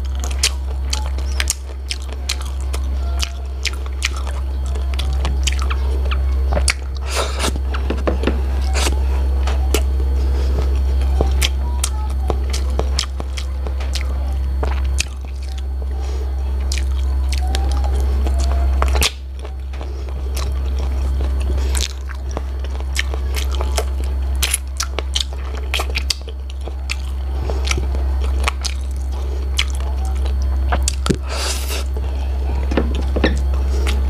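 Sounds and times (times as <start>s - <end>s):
mouth chewing and biting: 0.0s - 34.0s
steady low hum: 0.0s - 34.0s.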